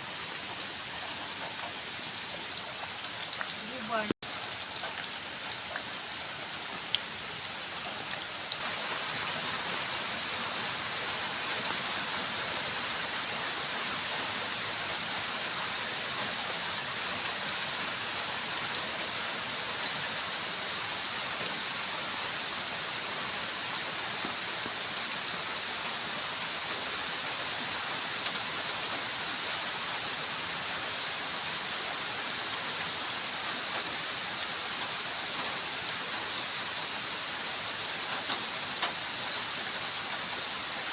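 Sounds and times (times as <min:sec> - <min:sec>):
steady rain hissing: 0:00.0 - 0:40.9
raindrops ticking: 0:00.2 - 0:08.6.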